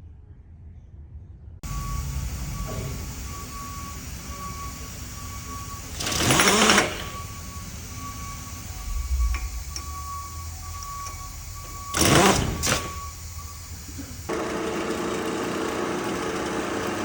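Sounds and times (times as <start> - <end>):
burst of air with rattle: 1.6 - 14.3
rising whine: 1.6 - 14.3
steady mechanical background: 1.6 - 17.0.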